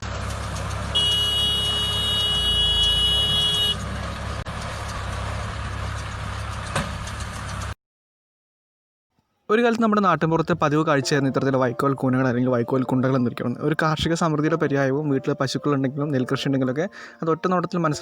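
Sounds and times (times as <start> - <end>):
heavy engine rumbling: 0.0 - 7.8.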